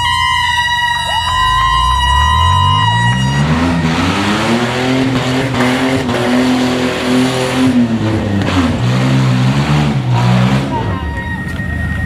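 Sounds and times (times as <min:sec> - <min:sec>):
car engine revving hard: 0:02.4 - 0:11.0.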